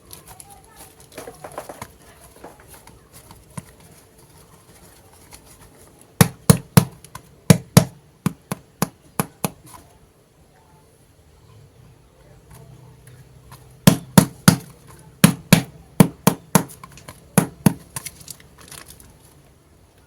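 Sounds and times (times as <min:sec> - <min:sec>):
sharp knocks: 0:06.2 - 0:09.6, 0:13.8 - 0:17.9.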